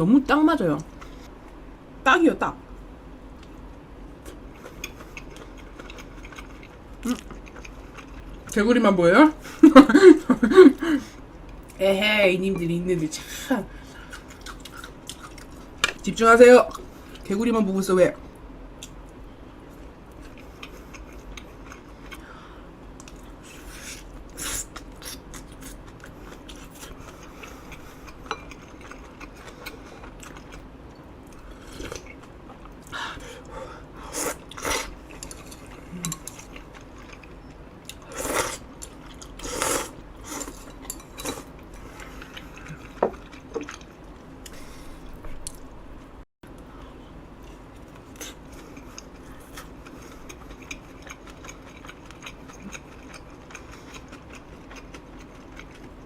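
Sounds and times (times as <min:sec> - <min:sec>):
chewing and biting: 0:47.7 - 0:56.0.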